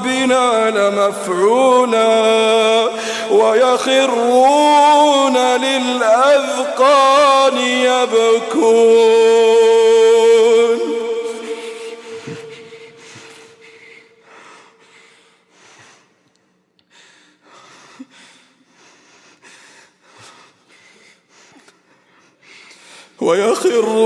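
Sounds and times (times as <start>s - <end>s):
man sobbing: 1.6s - 14.3s
recited note echoing: 2.9s - 14.4s.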